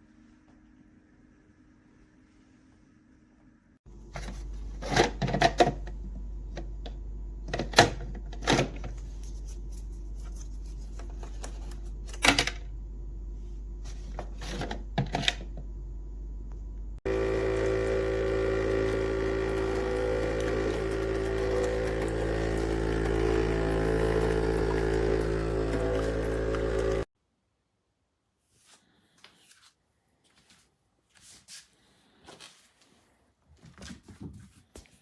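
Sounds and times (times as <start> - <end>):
low hum: 15.6 - 27.1
coffee machine pump buzzing: 17.0 - 27.1.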